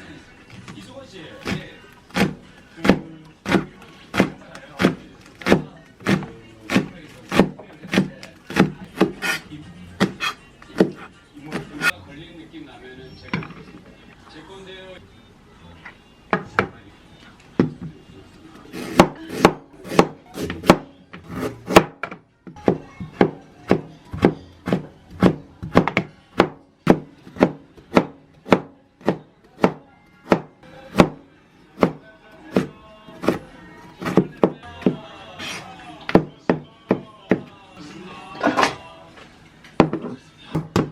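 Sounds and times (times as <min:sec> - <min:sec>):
knife chopping on wooden board: 0:01.4 - 0:09.4, 0:10.0 - 0:11.9, 0:18.7 - 0:31.2, 0:31.8 - 0:33.4, 0:34.0 - 0:35.0.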